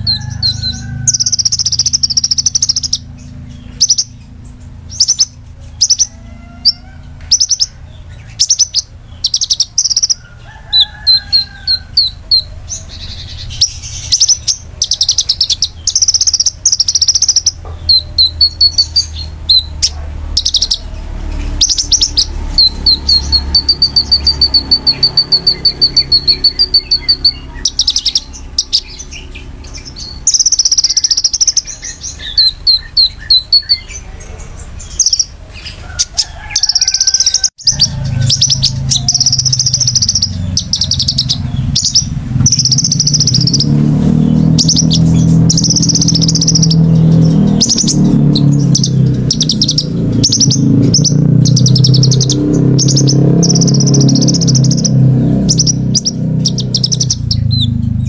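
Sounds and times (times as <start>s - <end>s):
steady low hum: 0.0s - 36.2s
songbird chirping in sharp bursts: 0.0s - 58.0s.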